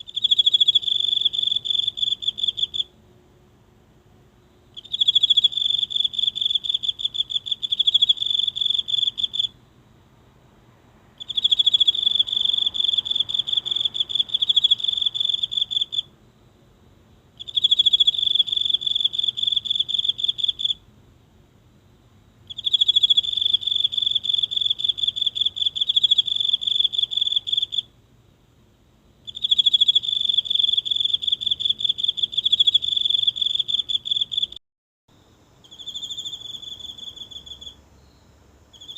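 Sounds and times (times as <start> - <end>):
insect trilling: 0.0 - 2.9, 4.8 - 9.6, 11.2 - 16.1, 17.4 - 20.8, 22.5 - 27.9, 29.3 - 34.6, 35.2 - 38.9.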